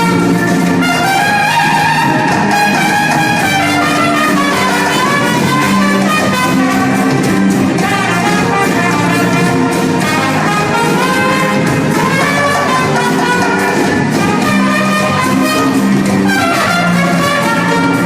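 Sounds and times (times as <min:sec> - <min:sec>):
brass band playing: 0:00.0 - 0:18.0
trumpets holding notes: 0:00.0 - 0:18.0.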